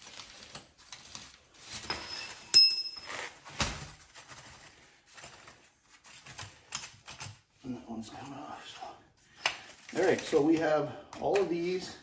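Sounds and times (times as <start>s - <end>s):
metal objects clinking: 1.7s - 3.4s
sharp ringing metallic clink: 2.0s - 3.1s.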